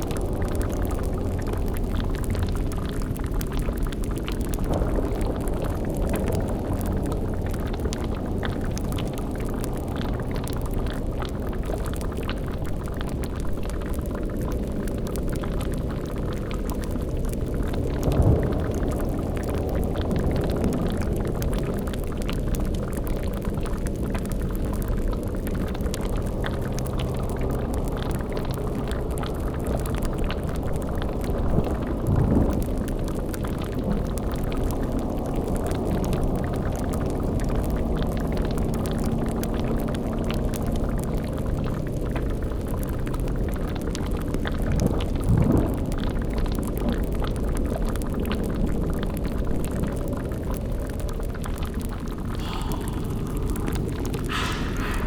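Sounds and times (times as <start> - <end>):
low bubbling rumble: 0.0 - 55.0
eerie droning hum: 52.3 - 55.0.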